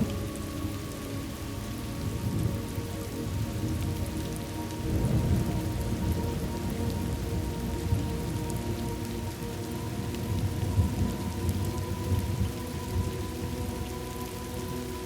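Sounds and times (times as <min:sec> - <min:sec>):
steady rain falling: 0:00.0 - 0:15.0
low rolling thunder: 0:03.3 - 0:09.3.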